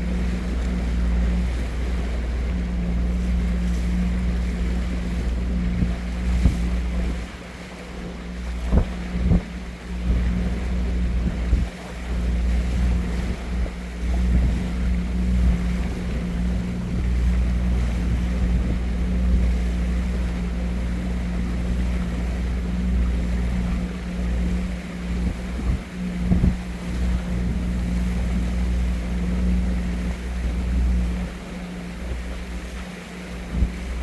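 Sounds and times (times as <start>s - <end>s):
low engine drone: 0.0s - 34.0s
wind gusting on microphone: 8.5s - 11.8s, 25.1s - 28.4s.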